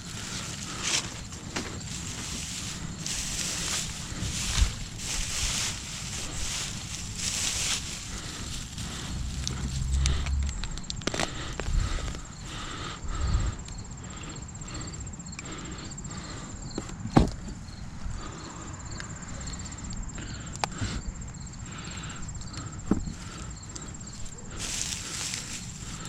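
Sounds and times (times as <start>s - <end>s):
hands rummaging through straw: 0.0s - 10.5s, 24.2s - 26.0s
high insect trill: 0.0s - 26.0s.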